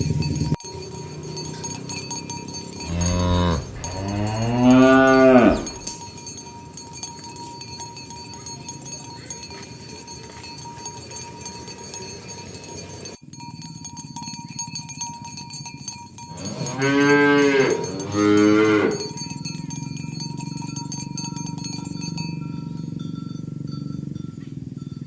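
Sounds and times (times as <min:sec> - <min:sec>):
cow mooing: 0:02.8 - 0:06.0, 0:16.3 - 0:19.3.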